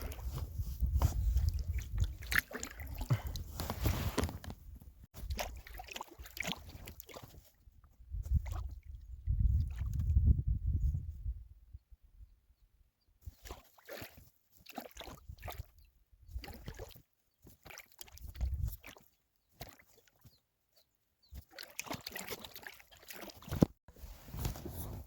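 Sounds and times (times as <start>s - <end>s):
paddle dipping into water: 0.0s - 4.6s, 5.2s - 7.6s, 21.4s - 23.8s.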